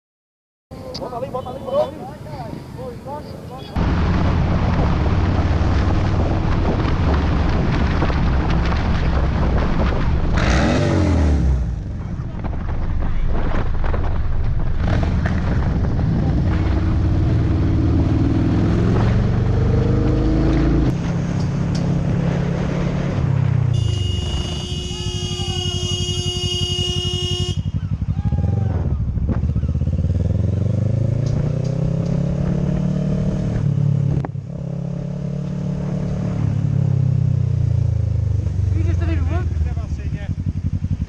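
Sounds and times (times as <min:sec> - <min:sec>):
motorcycle engine revving: 0:03.6 - 0:12.4, 0:14.6 - 0:41.0
vehicle horn blast: 0:23.7 - 0:27.8.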